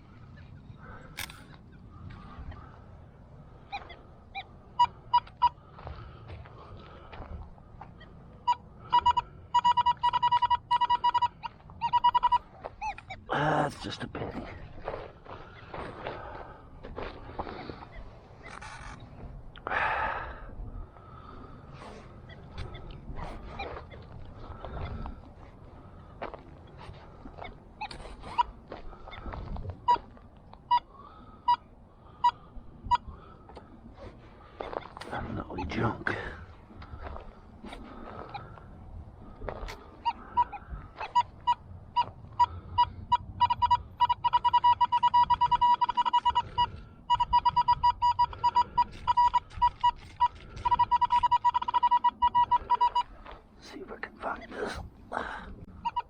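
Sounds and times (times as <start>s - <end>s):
metal detector beeping: 3.7s - 5.6s, 8.0s - 13.3s, 22.3s - 25.0s, 27.3s - 31.6s, 32.2s - 33.2s, 39.6s - 53.4s, 55.8s - 56.0s.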